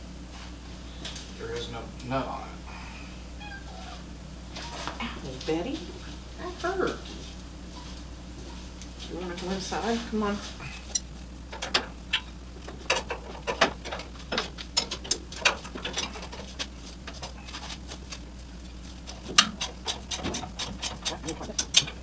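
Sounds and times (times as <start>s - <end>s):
steady low hum: 0.0s - 22.0s
ratchet wrench clicking: 10.8s - 18.2s, 18.8s - 22.0s.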